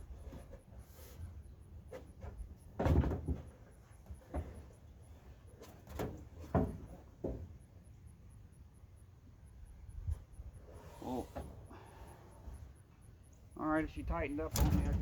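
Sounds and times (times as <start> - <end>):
dull knocks and bumps: 1.9 - 4.8, 5.9 - 7.6.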